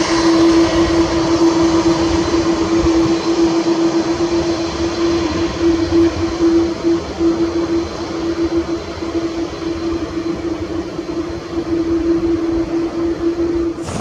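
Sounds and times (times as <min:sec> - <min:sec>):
constant droning hum: 0:00.0 - 0:14.0
jet engine noise: 0:00.0 - 0:14.0.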